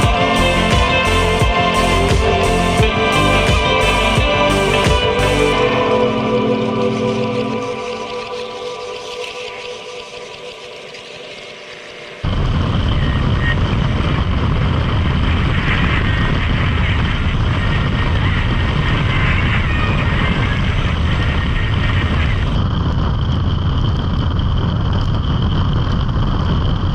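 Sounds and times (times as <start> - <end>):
music track: 0.0 - 12.2
motorcycle engine and rushing air: 12.2 - 26.9.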